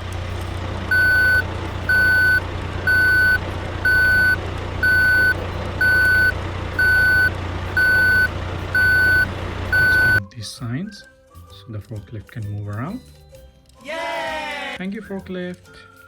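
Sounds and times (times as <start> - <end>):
low engine rumble: 0.0 - 10.2
reversing alarm beeping: 0.9 - 10.2.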